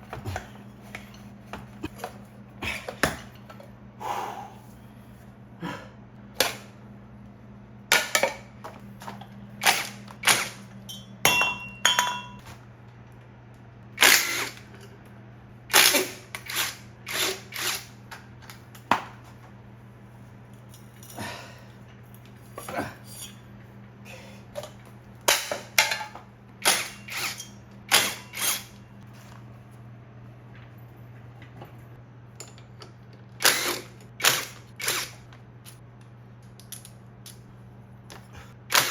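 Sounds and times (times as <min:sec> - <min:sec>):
steady low hum: 0:00.0 - 0:38.9
metal tools clanking: 0:10.9 - 0:12.5, 0:22.4 - 0:23.6.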